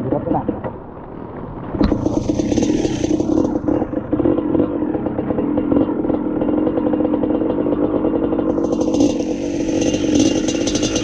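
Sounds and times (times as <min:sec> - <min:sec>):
rattling: 0:01.8 - 0:04.8, 0:08.5 - 0:11.0
dirt bike engine running: 0:01.8 - 0:11.0.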